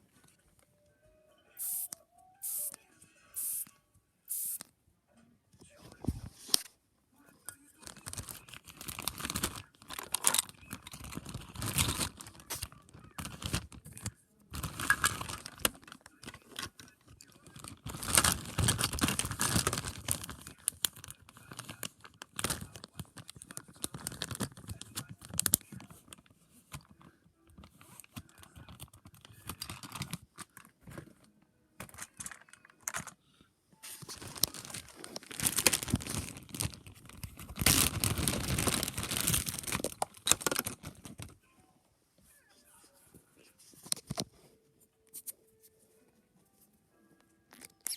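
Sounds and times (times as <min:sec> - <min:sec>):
plastic packaging rustling: 0:07.8 - 0:31.1, 0:33.8 - 0:41.4.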